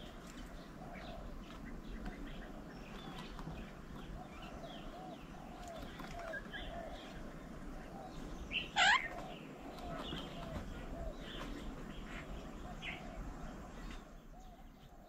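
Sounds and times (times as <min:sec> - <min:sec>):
birds chirping and chattering: 0:00.0 - 0:15.0
loud harsh bird call: 0:08.5 - 0:09.2.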